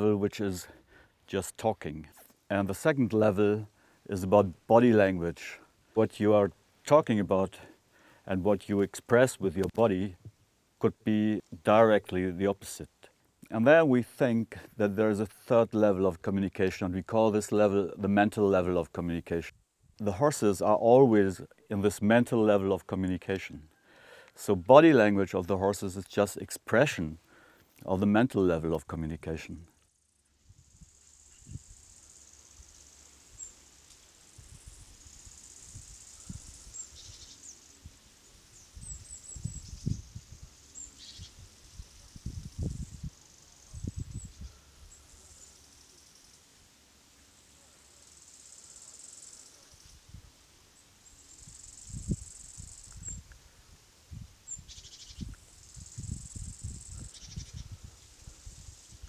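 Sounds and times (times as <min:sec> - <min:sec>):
insects chirring: 0:29.5 - 0:59.0.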